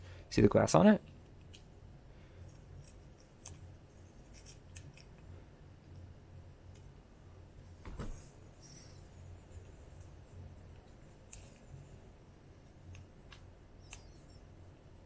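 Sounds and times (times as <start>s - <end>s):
sticky tape ticking and crackling: 12.6s - 14.5s.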